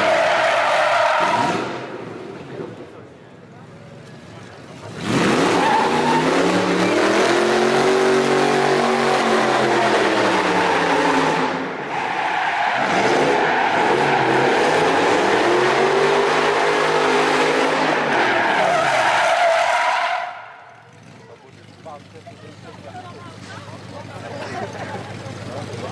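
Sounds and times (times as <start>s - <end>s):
car engine revving high: 5.0s - 20.4s
tyres screeching: 5.2s - 20.6s.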